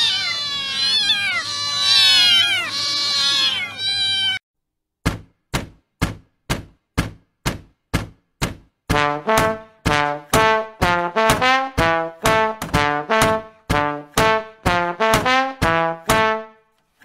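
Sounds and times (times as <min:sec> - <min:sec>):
cats meowing: 0:00.0 - 0:04.4.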